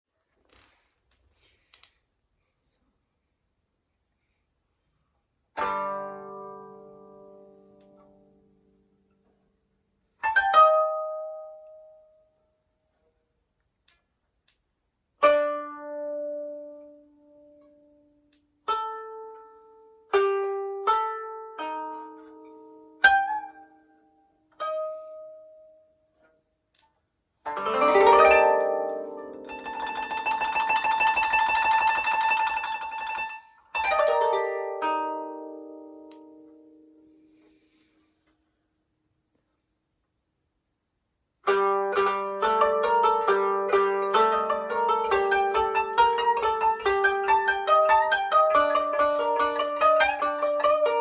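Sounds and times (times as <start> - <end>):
koto plucked notes: 5.6 - 8.6, 10.2 - 12.4, 15.2 - 26.3, 27.4 - 37.5, 41.4 - 51.0
koto tremolo: 10.2 - 12.0, 20.1 - 25.8, 27.5 - 37.2, 41.4 - 51.0.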